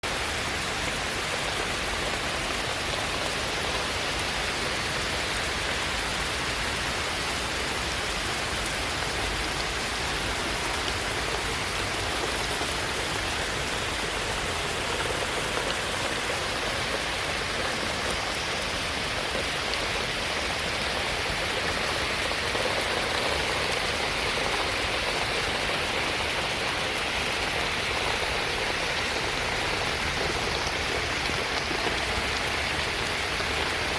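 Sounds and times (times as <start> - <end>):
steady rain hiss: 0.0 - 33.9
water running off: 8.0 - 33.9.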